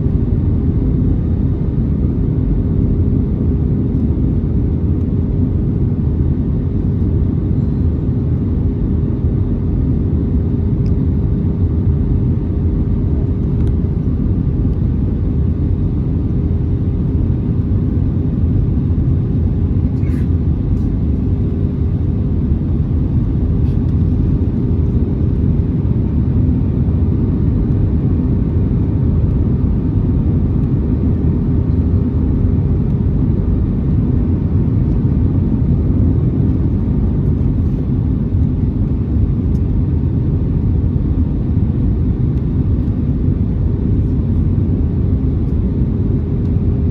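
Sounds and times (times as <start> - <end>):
airplane cabin rumble: 0.0 - 46.9.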